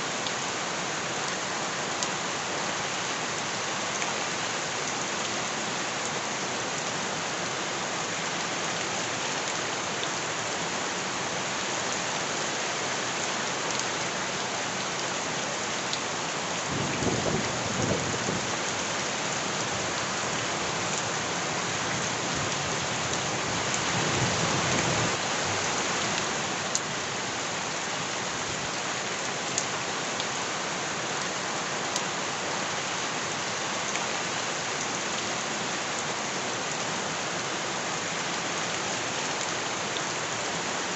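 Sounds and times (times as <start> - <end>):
heavy rain hissing: 14.1 - 29.2.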